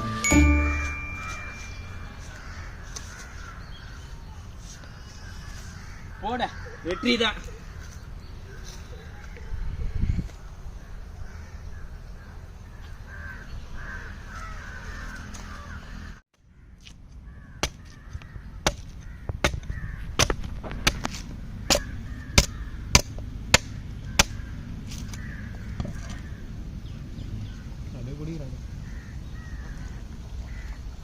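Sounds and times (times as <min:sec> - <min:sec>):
crows cawing: 0:02.2 - 0:09.4, 0:10.8 - 0:20.2, 0:21.6 - 0:26.4, 0:28.7 - 0:30.8.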